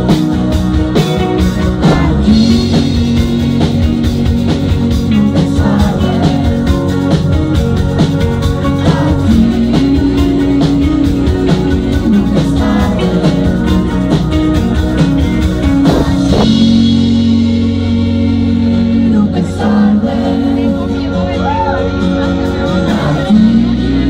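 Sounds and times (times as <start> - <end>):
drum beat: 0.0 - 17.5
rock band playing: 0.0 - 24.0.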